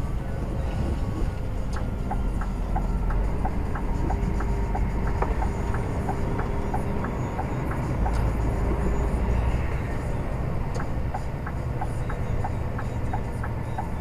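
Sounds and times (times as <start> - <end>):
road noise: 0.0 - 14.0
truck engine drone: 0.0 - 14.0
turn signal relay ticking: 1.6 - 8.5, 10.7 - 14.0.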